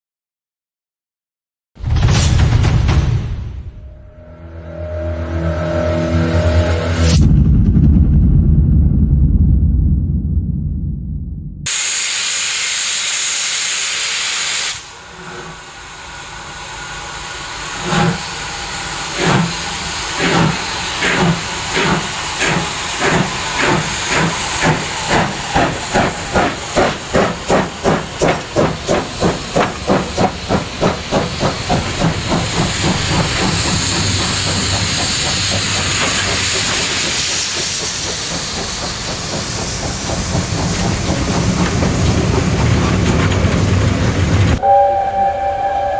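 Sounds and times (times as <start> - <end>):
steam hissing: 11.7 - 43.2
steam locomotive exhaust chuffs: 11.7 - 45.9.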